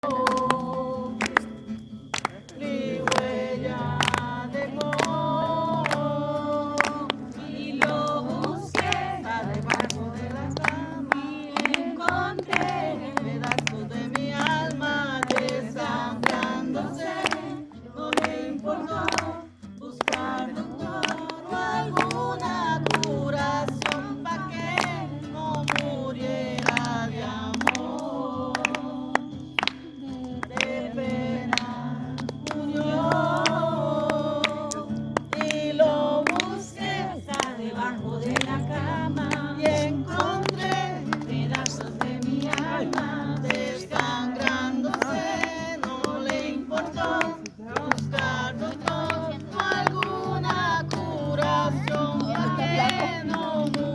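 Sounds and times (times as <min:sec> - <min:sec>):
voices singing with music: 0:00.0 - 0:53.9.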